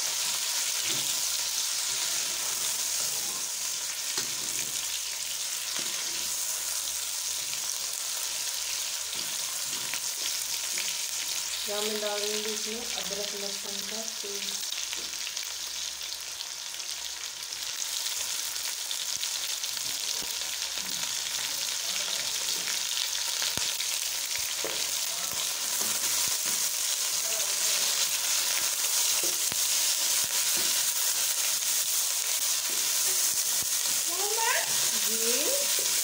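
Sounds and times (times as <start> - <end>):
chicken and onions sizzling in oil: 0.0 - 36.0
spatula scraping a pan: 0.8 - 5.0, 5.6 - 6.5.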